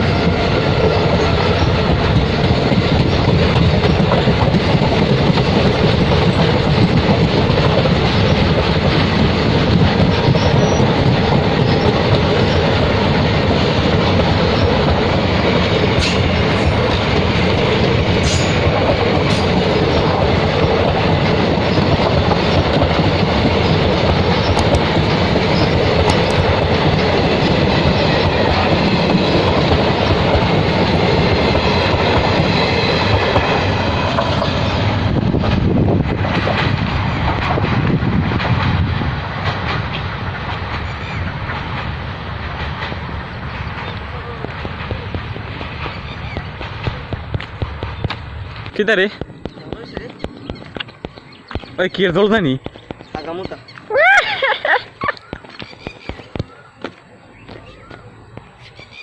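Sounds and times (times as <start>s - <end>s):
wheels clattering over rail joints: 0.0s - 53.9s
train rumble: 0.0s - 59.0s.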